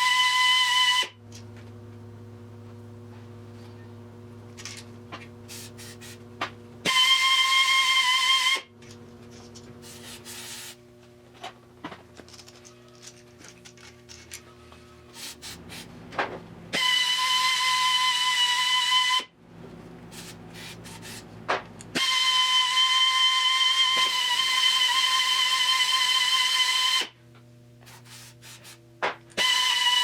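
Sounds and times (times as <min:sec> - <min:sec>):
drill whining high-pitched: 0:00.0 - 0:01.1, 0:06.9 - 0:08.7, 0:16.7 - 0:19.3, 0:22.0 - 0:27.2, 0:29.4 - 0:30.0.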